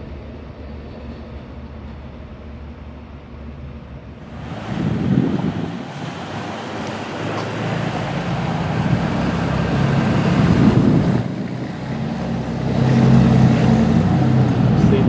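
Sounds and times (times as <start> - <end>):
diesel locomotive engine hum: 0.0 - 15.0
train wheels on rails: 0.0 - 15.0
wind on microphone: 4.2 - 15.0.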